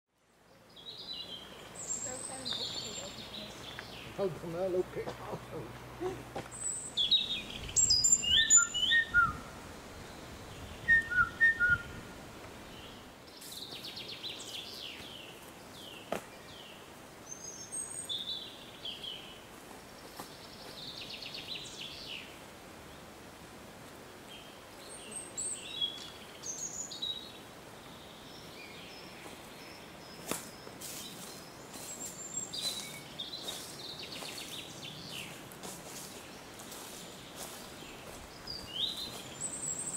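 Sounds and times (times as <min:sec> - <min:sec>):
songbirds chirping and singing: 0:00.4 - 0:12.0, 0:24.3 - 0:39.9.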